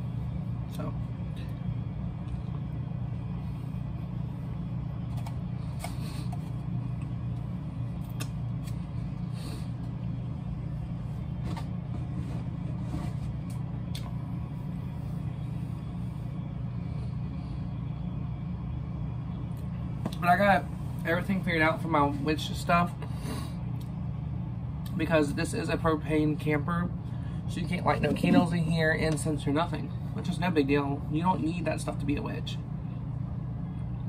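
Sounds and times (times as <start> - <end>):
steady low hum: 0.0 - 34.0
wet mouth clicks and smacks: 8.0 - 8.8.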